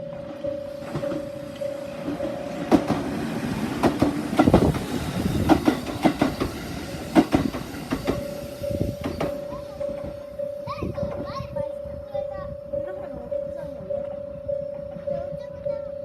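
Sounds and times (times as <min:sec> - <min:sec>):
level crossing bell ringing: 0:00.0 - 0:02.7, 0:08.2 - 0:16.0
train wheels clacking over rail joints: 0:00.8 - 0:10.2.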